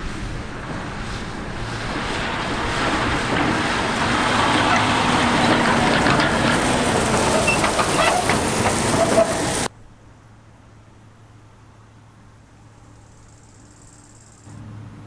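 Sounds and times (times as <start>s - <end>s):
harvest machinery rushing noise: 0.0s - 9.7s
low engine hum: 0.0s - 9.7s, 14.5s - 15.0s.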